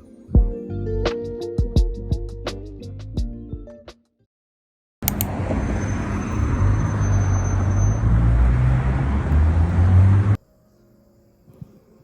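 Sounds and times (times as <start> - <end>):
vehicle engine and road noise: 5.0 - 10.4.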